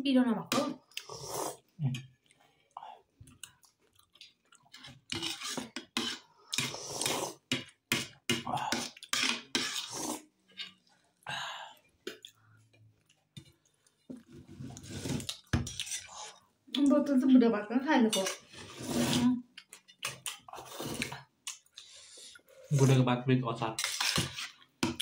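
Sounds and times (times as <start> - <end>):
wet chewing: 3.2 - 5.1.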